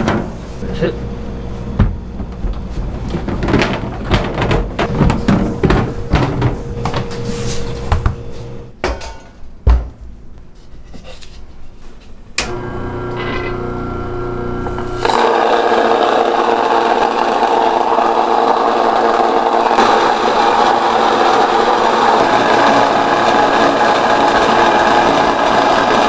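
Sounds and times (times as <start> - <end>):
machine hum: 0.0 - 8.7, 12.4 - 26.0
objects knocking while handled: 1.7 - 10.2.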